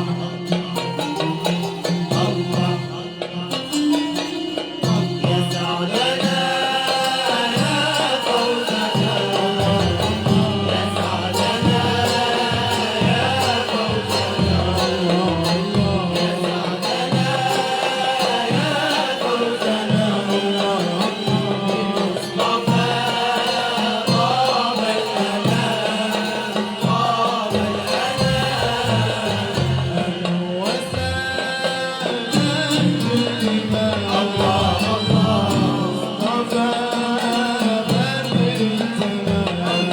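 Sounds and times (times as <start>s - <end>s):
hand drum beat: 0.0s - 39.9s
bending melody: 7.3s - 30.4s.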